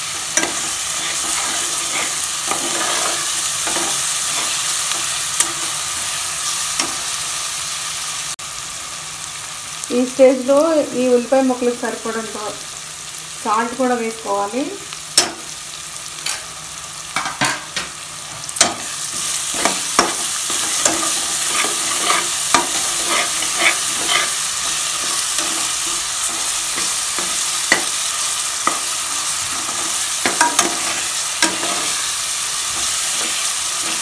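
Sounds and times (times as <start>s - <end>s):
onions sizzling in hot oil: 0.0s - 34.0s
metal spatula scraping pan: 0.3s - 5.7s, 19.1s - 27.9s.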